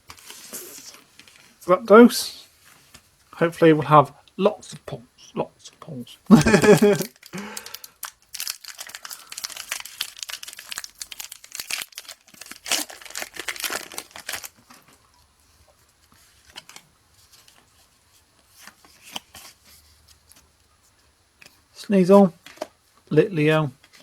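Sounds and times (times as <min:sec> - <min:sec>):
faint handling rustles: 0:02.3 - 0:03.4
foil wrapper tearing and crinkling: 0:06.5 - 0:14.9.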